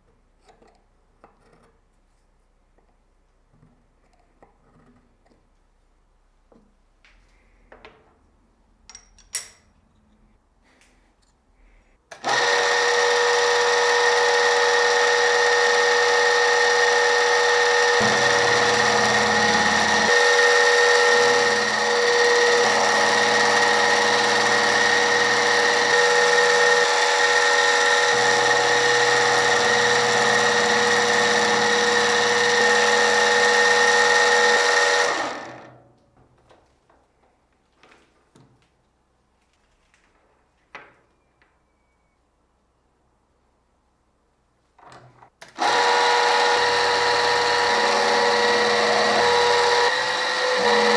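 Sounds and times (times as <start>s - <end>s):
machine tool whining: 12.2s - 35.7s, 45.6s - 50.9s.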